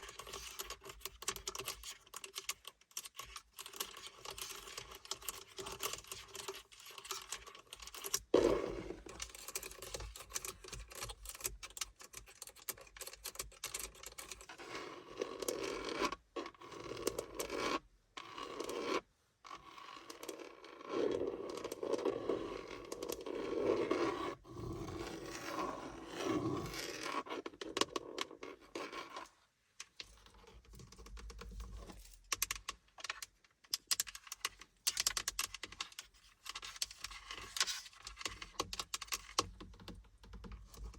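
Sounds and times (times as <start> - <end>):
scratching on car surfaces: 13.2 - 32.6.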